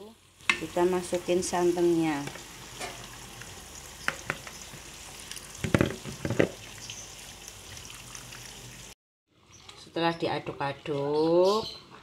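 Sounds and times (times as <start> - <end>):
frying hiss in a wok: 0.0 - 9.0.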